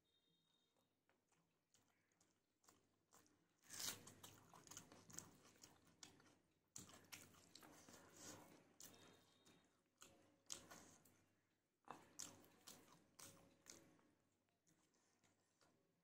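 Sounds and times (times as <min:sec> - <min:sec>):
faint chewing with mouth clicks: 0:00.6 - 0:16.0.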